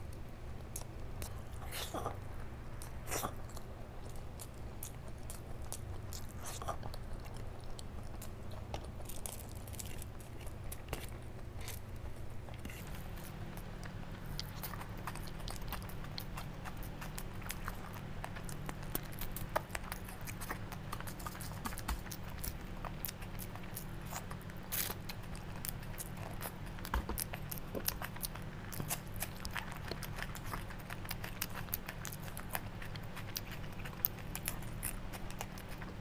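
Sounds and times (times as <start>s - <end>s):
close chewing and mouth clicks: 0.0s - 36.0s
low steady hum: 0.0s - 36.0s.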